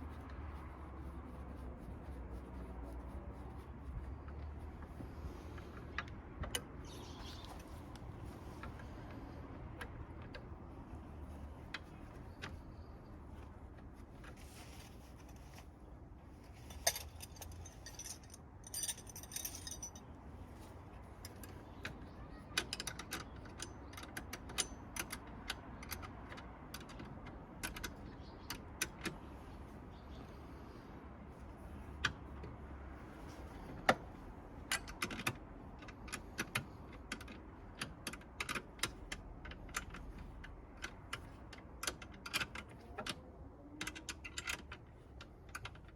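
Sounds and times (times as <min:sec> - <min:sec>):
hand tools clicking and clinking: 0:16.7 - 0:20.0.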